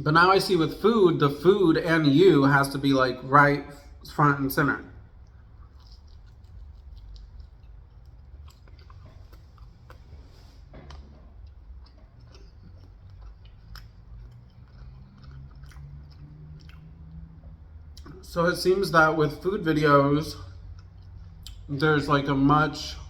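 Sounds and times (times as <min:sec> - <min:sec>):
person chewing food: 0:05.0 - 0:18.2, 0:20.4 - 0:21.7.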